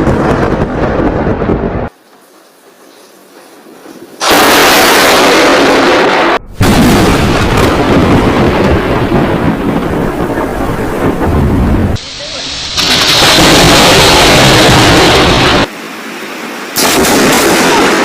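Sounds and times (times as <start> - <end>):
loud thunder crack: 0.0 - 1.9, 4.2 - 15.7, 16.8 - 18.0
thunder rumbling: 0.0 - 1.9, 3.6 - 15.7.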